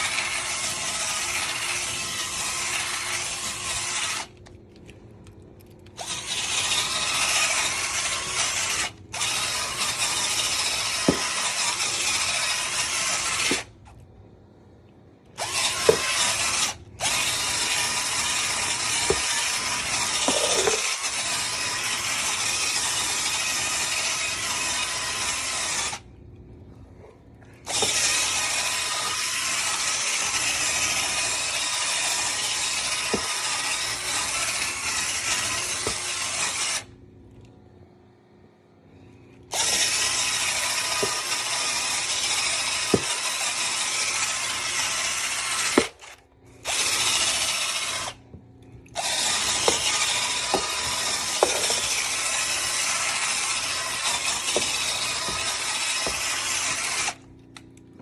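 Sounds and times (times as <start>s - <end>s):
vacuum cleaner on carpet: 0.0s - 4.2s, 6.0s - 13.6s, 15.4s - 25.6s, 27.6s - 36.8s, 39.5s - 45.9s, 49.0s - 57.2s.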